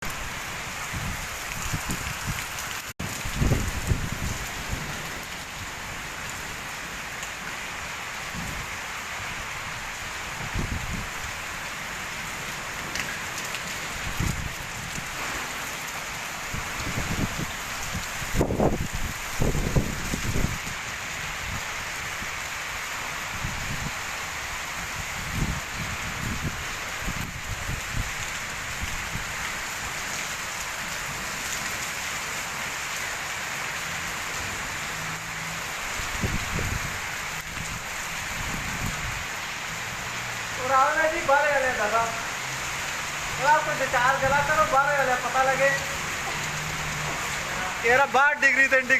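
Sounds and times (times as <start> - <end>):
heavy rain pouring: 0.0 - 48.9
wind buffeting microphone: 0.8 - 5.2, 8.3 - 8.7, 10.4 - 11.3, 13.9 - 15.2, 16.5 - 20.8, 24.9 - 29.4, 36.0 - 39.3
low gusty rumbles: 3.0 - 5.2, 16.5 - 20.8, 36.1 - 37.0.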